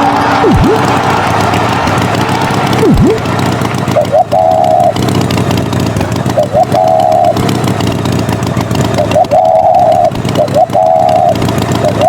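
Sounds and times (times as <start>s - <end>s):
held higher tone: 0.0s - 5.4s, 6.2s - 7.6s, 8.9s - 12.0s
tractor engine running: 0.0s - 12.0s
short rising chirps: 9.0s - 12.0s.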